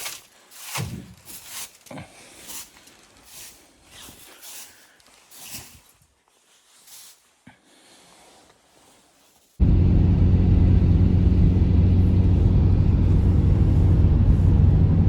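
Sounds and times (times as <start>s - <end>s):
footsteps crunching in snow: 0.0s - 9.6s.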